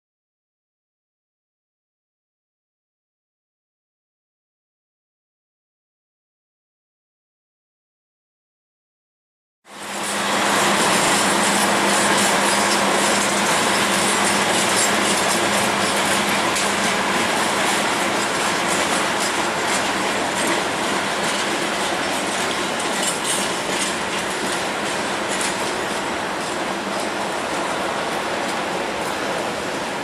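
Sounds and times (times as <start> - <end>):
rumble of wheels on rail: 9.7 - 30.0.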